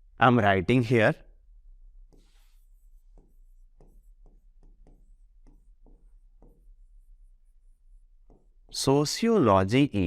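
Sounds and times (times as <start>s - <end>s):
pen strokes of handwriting: 2.0s - 8.9s.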